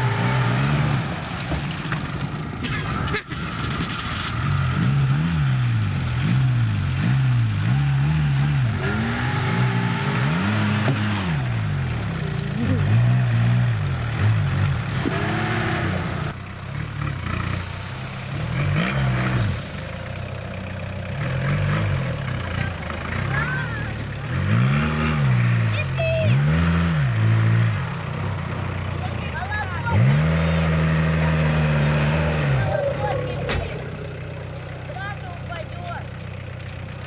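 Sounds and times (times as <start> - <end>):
diesel engine revving: 0.0 - 37.0.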